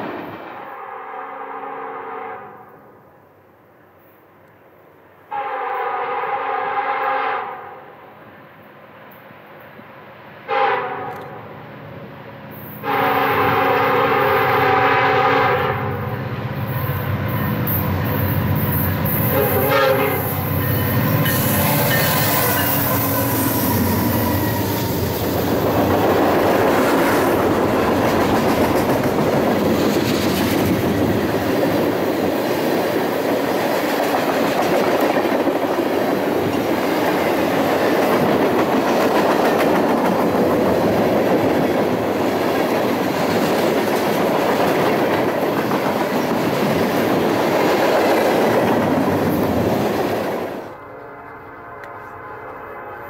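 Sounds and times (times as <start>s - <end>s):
diesel locomotives passing: 0.0s - 53.0s
train horn: 0.6s - 3.0s, 5.3s - 8.1s, 10.5s - 11.5s, 12.8s - 25.2s, 50.7s - 53.0s
train wheels rumbling and clattering: 15.6s - 50.7s.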